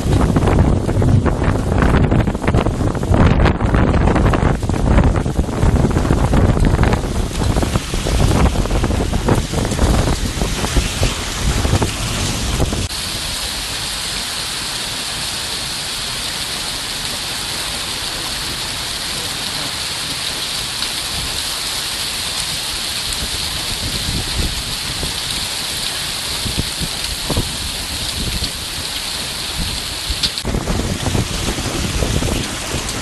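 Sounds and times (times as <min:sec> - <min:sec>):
low rumble: 0:00.0 - 0:13.6, 0:30.4 - 0:33.0
heavy rain pouring: 0:00.0 - 0:33.0
distant thunder rumbling: 0:30.4 - 0:33.0.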